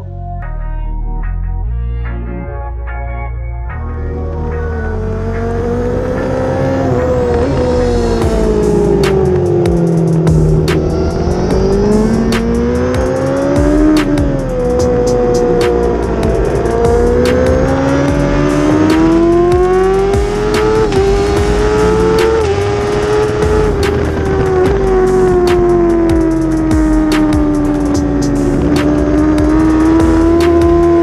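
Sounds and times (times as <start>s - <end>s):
motorcycle engine at racing speed: 4.4s - 31.0s.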